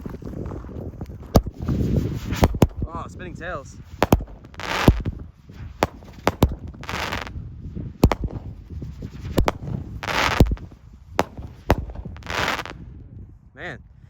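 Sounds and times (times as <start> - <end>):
firework bangs: 1.3 - 2.9, 3.8 - 7.4, 8.0 - 12.8
firework hissing rushes: 3.8 - 7.3, 8.0 - 12.8.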